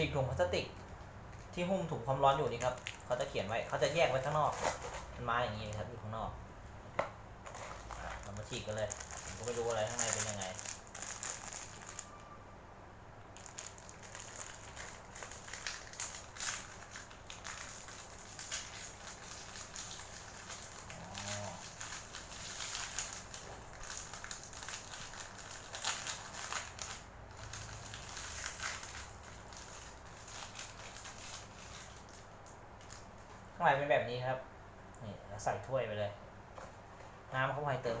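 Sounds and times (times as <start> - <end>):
plastic wrapping crinkling: 1.4 - 5.9, 7.4 - 12.3, 13.4 - 33.3.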